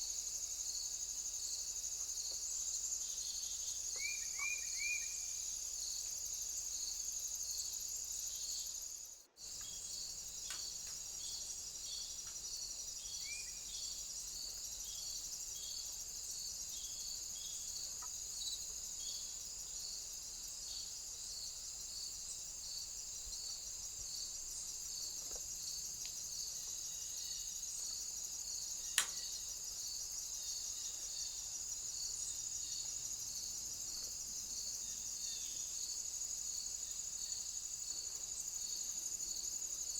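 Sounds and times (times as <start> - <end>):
insects chirping: 0.0 - 39.9
sharp click: 29.0 - 29.2.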